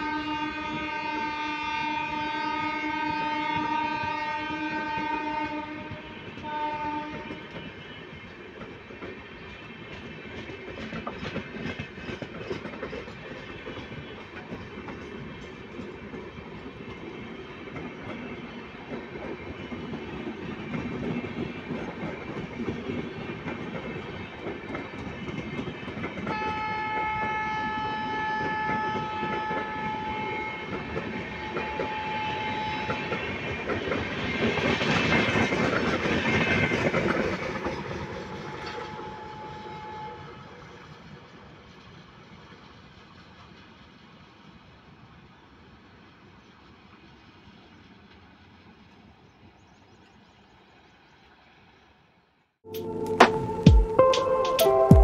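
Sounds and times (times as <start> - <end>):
train horn: 0.0 - 7.9, 26.2 - 33.5, 37.9 - 40.7, 52.7 - 55.0
train wheels rumbling and clattering: 3.0 - 45.1.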